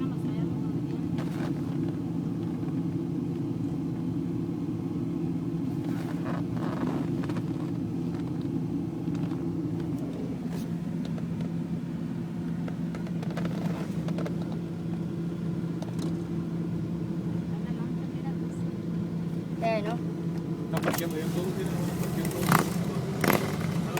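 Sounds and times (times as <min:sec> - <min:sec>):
vehicle engine drone: 0:00.0 - 0:23.9
motorcycles passing: 0:20.8 - 0:23.9.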